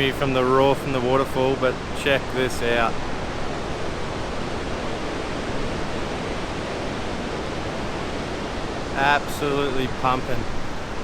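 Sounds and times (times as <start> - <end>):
roar of waterfall: 0.0 - 11.0.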